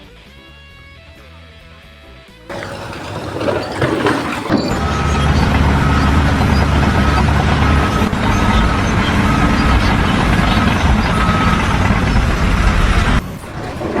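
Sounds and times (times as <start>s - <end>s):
reversing alarm beeps: 2.5s - 13.4s
heavy machine engine running: 2.5s - 14.0s.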